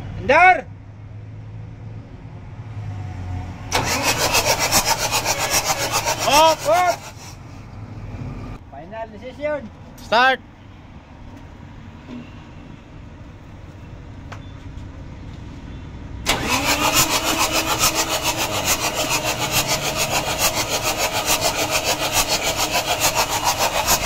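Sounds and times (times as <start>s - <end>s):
diesel engine cranking and starting: 3.6s - 8.6s, 16.0s - 24.0s.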